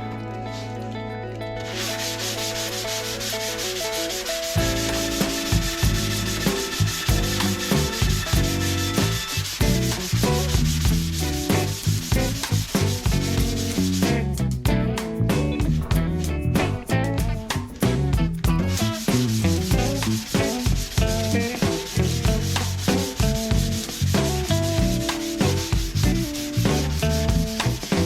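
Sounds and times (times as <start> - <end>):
background music: 0.0 - 28.0
sanding body filler: 1.7 - 14.3, 18.7 - 28.0.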